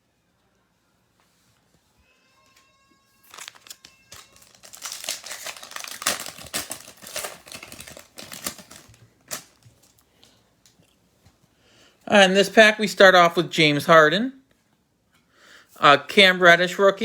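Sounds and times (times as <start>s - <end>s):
foil wrapper crinkling: 3.2s - 10.4s.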